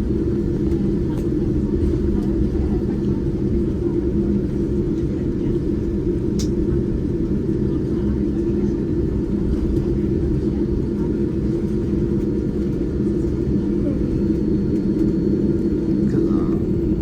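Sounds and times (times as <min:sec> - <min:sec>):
airplane cabin engine rumble: 0:00.0 - 0:17.0.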